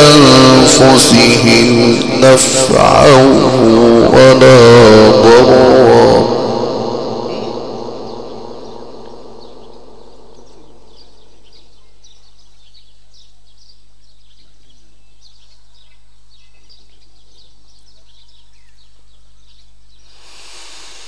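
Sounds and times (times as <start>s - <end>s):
small birds chirping: 7.4s - 21.0s.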